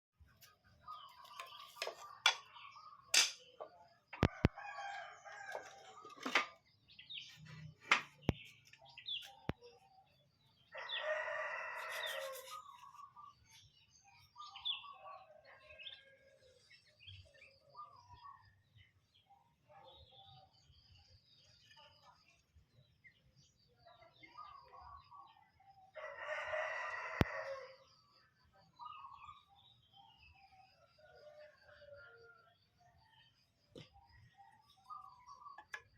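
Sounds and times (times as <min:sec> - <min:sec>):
birds chirping and calling: 0:00.8 - 0:19.4, 0:28.8 - 0:31.4
rooster crowing: 0:04.2 - 0:06.0, 0:10.7 - 0:12.6, 0:26.0 - 0:27.8.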